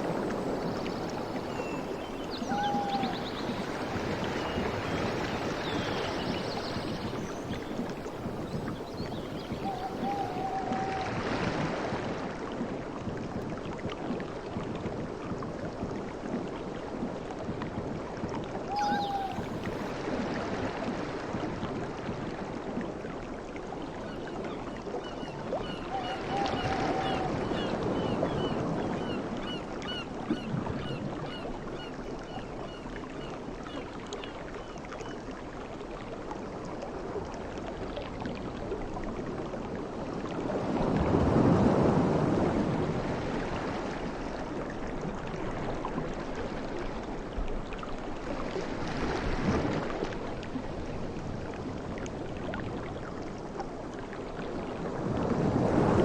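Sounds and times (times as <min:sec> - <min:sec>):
sea waves breaking: 0:00.0 - 0:12.2.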